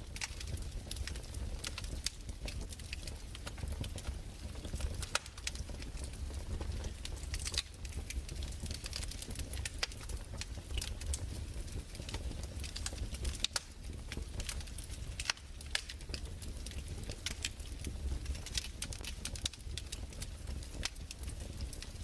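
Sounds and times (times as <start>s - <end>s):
fire snaps and pops: 0.0s - 22.0s
low fire rumble: 0.0s - 22.0s.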